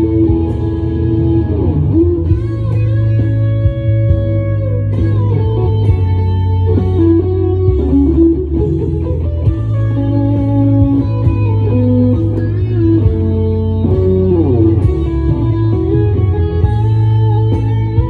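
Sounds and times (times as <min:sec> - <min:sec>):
electric guitar lead with bends: 0:00.0 - 0:18.0
low bass backing: 0:00.0 - 0:18.0.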